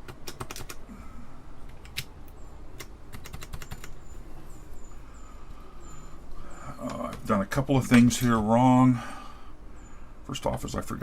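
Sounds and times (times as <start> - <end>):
keyboard keys clicking: 0.0 - 0.8, 1.7 - 4.0.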